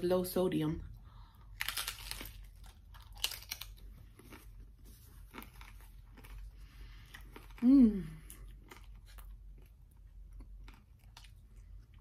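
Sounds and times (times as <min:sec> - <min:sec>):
crunching tostada shell: 0:01.5 - 0:07.6.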